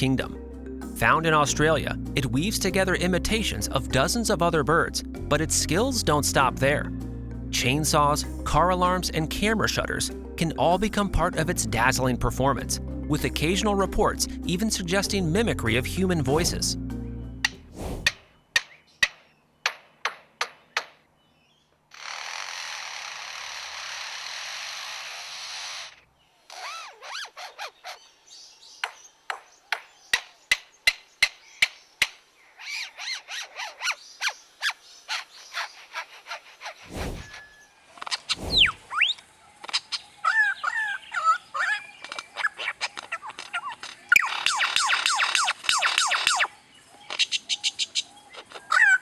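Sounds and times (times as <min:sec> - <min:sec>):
lyrebird sharp clicks: 0:42.0 - 0:46.5.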